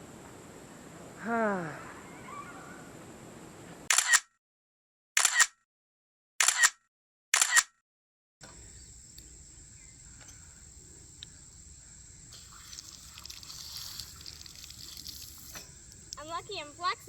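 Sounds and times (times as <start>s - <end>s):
camera shutter click: 3.9s - 4.3s, 5.2s - 5.6s, 6.4s - 6.8s, 7.4s - 7.7s
insect drone: 8.4s - 17.0s.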